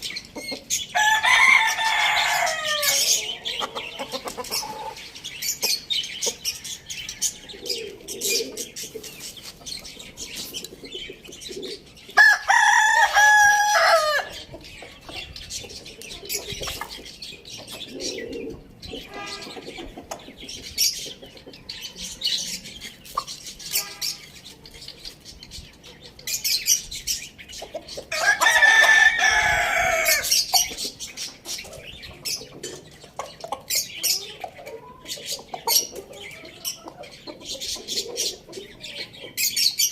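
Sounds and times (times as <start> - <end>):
chickens clucking: 0.0 - 39.9
rooster crowing: 1.0 - 3.5, 12.2 - 14.4, 28.1 - 30.3.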